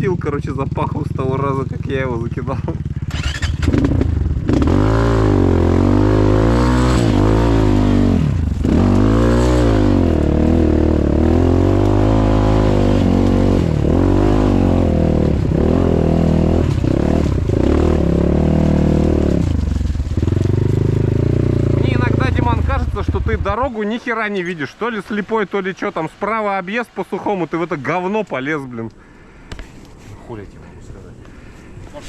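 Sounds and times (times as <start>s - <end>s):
motorcycle engine revving: 0.0s - 23.8s.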